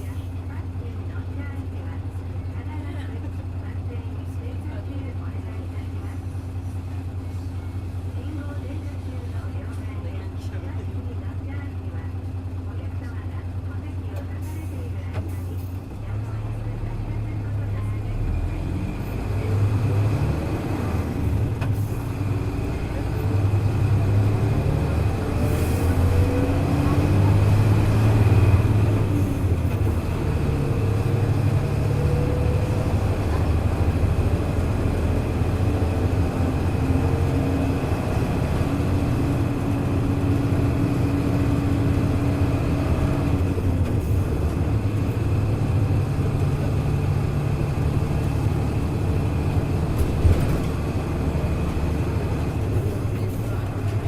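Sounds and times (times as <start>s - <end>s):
bus diesel engine under load: 0.0s - 54.0s.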